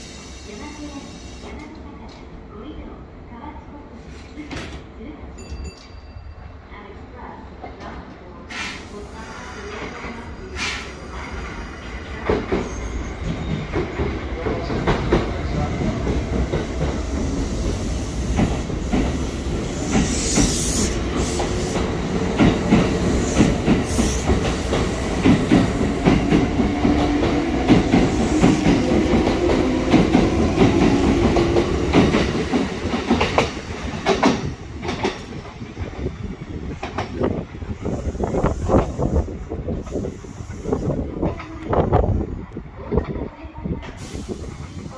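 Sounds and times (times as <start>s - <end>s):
train wheels clicking and rumbling: 9.7s - 44.9s.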